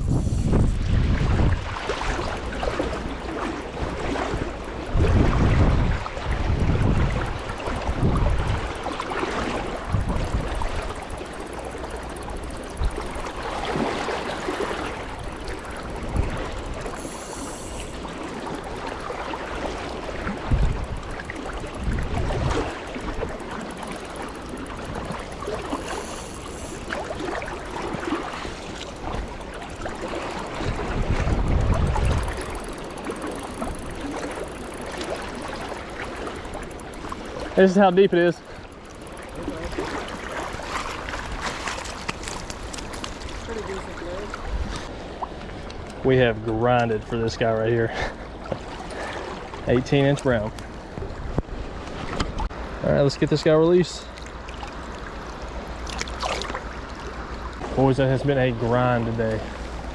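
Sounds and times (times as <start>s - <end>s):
creek water rushing: 22.2s - 50.8s.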